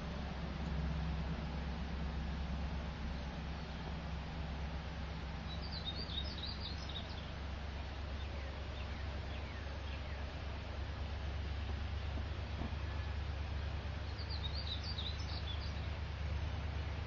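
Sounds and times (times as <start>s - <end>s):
low background hum: 0.0s - 17.0s
bird chirping: 5.4s - 10.8s, 13.6s - 17.0s.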